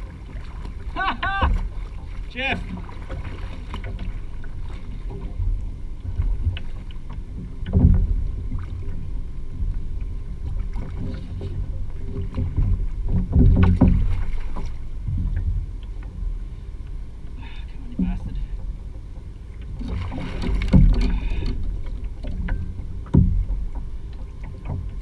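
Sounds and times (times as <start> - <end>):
water sloshing against kayak hull: 0.0 - 25.0
knocks on hull: 1.2 - 4.2, 7.4 - 8.8, 10.5 - 15.7, 19.8 - 25.0.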